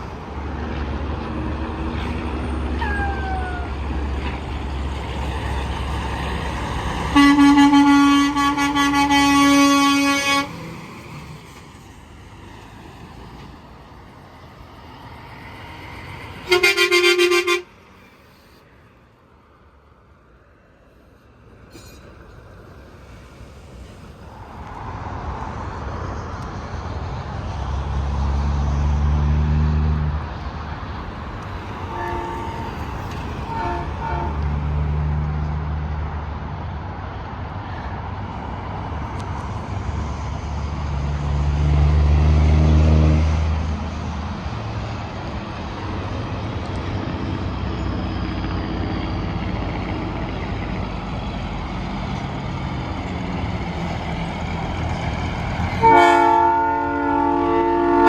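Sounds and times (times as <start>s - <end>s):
trucks passing on highway: 0.0s - 58.0s
horn short toots: 7.1s - 10.6s, 31.9s - 32.8s, 55.8s - 58.0s.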